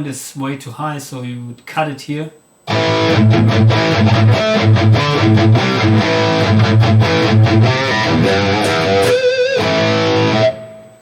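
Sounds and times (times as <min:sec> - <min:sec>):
distorted electric guitar riff: 0:02.7 - 0:11.0.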